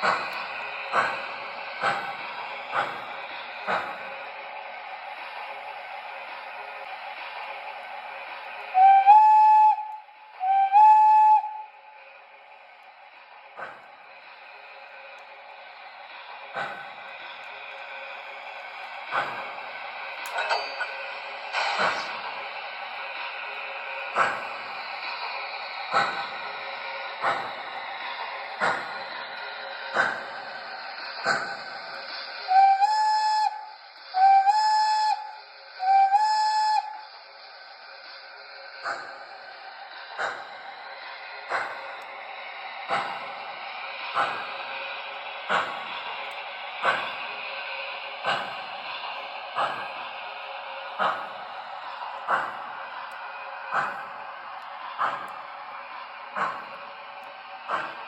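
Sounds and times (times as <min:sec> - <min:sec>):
click: 0:00.0 - 0:03.0, 0:20.2 - 0:20.9, 0:41.5 - 0:42.2, 0:45.1 - 0:47.1, 0:51.9 - 0:54.0
model train steam whistle: 0:08.6 - 0:11.8, 0:32.4 - 0:37.2.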